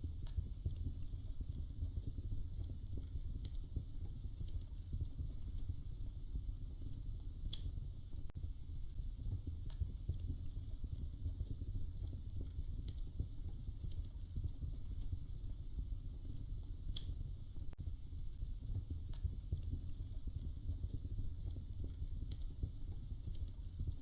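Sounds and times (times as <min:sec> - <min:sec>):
fire crackling pops: 0:00.0 - 0:24.0
wood fire rumbling: 0:00.0 - 0:24.0.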